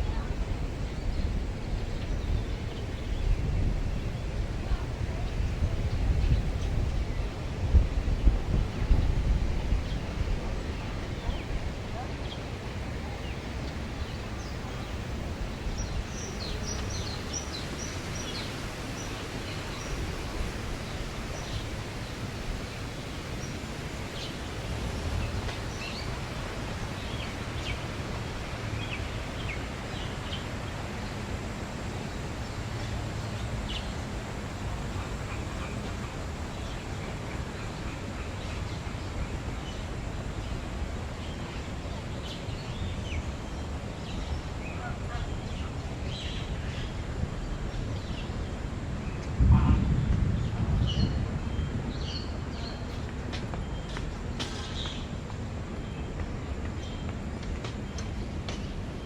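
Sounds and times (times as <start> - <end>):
birds chirping: 0.0 - 26.2
steady rushing noise: 0.0 - 59.0.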